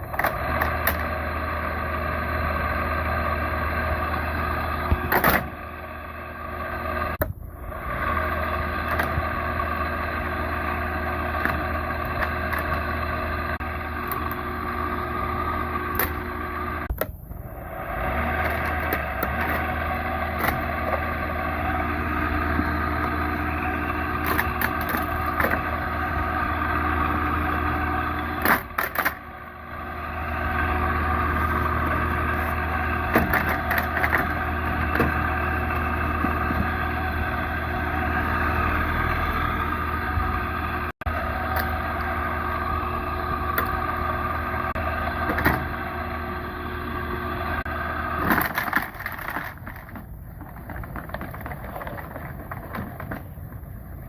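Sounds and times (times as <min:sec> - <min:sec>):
clicks and rattles: 0:48.2 - 0:53.7.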